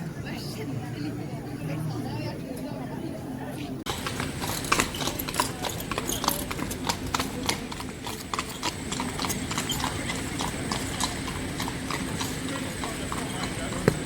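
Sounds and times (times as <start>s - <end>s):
horse hooves clopping on hard ground: 3.9s - 14.0s.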